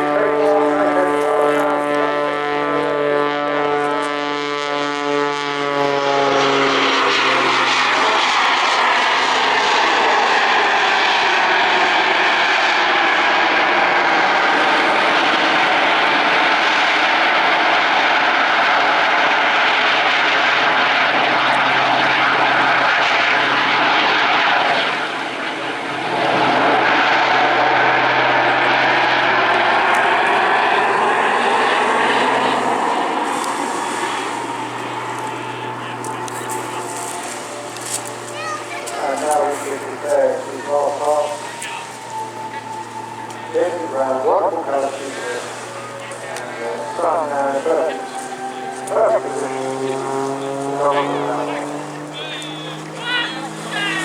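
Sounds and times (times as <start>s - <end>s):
plane engine drone: 0.0s - 54.0s
loud rushing noise: 26.1s - 51.5s.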